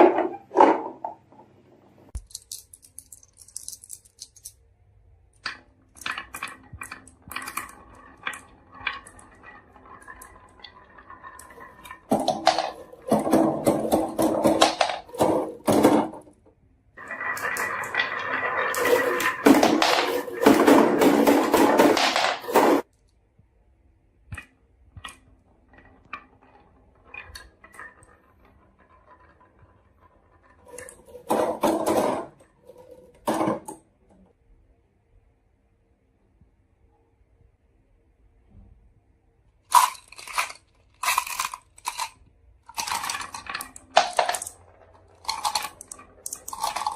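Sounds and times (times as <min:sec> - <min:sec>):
marbles rolling down wooden run: 0:06.0 - 0:16.3, 0:17.0 - 0:22.9, 0:25.1 - 0:33.8, 0:39.7 - 0:46.9.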